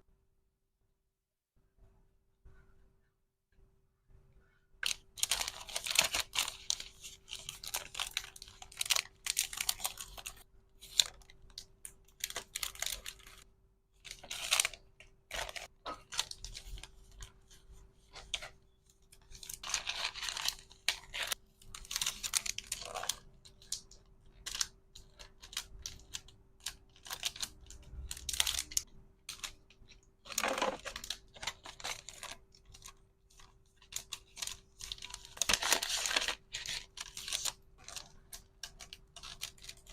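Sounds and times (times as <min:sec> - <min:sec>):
packaging rustling and crinkling: 0:04.8 - 0:13.4, 0:14.0 - 0:39.9.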